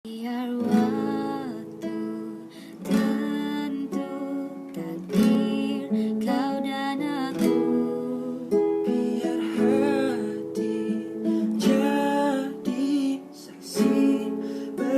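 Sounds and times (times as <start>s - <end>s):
person singing: 0.1s - 14.9s
acoustic guitar strumming: 0.3s - 14.9s.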